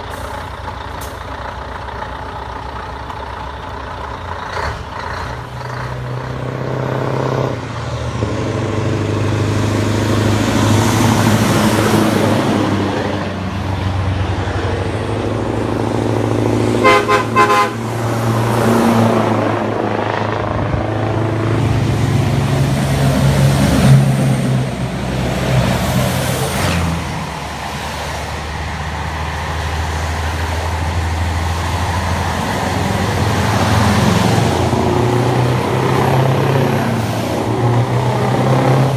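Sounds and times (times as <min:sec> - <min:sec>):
truck diesel engine running: 0:00.0 - 0:38.9
truck horn toots: 0:16.5 - 0:19.0.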